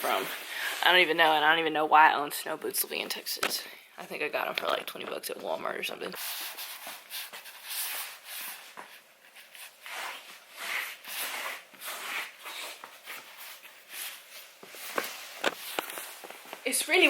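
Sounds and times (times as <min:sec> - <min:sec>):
clothing rustling and scuffing: 0:06.2 - 0:17.0.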